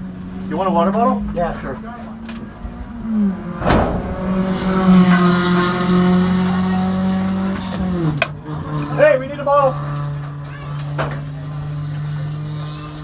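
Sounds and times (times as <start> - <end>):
race car engine running: 0.0 - 13.0
sharp bang: 3.6 - 4.8.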